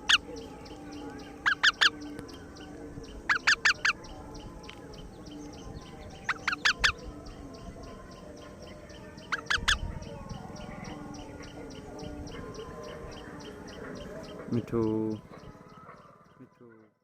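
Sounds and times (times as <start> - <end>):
baby parakeet squawking: 0.0 - 0.3, 1.4 - 2.0, 3.3 - 4.0, 6.3 - 7.0, 9.3 - 9.9.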